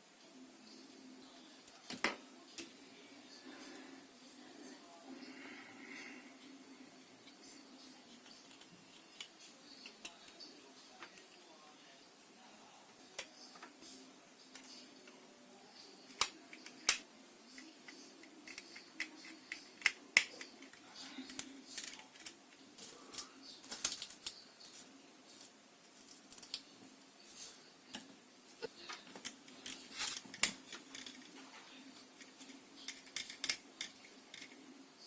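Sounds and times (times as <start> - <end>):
faint steady hum: 0.0 - 35.0
small tools clicking and tapping: 16.1 - 26.7, 28.9 - 31.4, 32.0 - 34.6.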